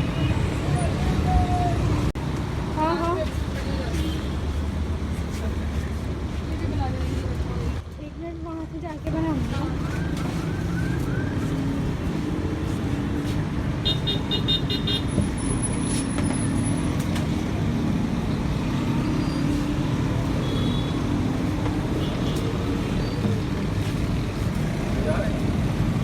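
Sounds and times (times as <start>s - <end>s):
street traffic rumble: 0.0s - 26.0s.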